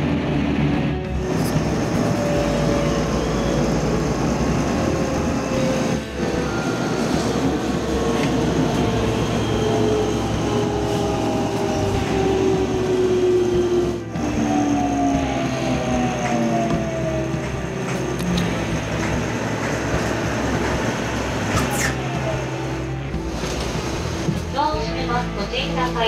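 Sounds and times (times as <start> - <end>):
train motors whining: 0.0 - 24.6
train wheels rumbling: 0.0 - 26.0.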